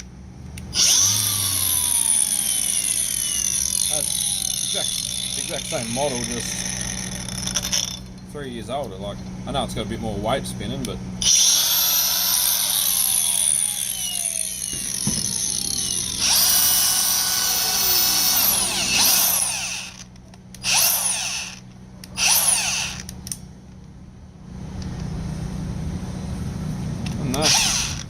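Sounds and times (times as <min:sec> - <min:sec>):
angle grinder whine: 0:00.6 - 0:08.2, 0:11.2 - 0:23.2, 0:27.3 - 0:28.0
grinder trigger blips: 0:11.3 - 0:23.4.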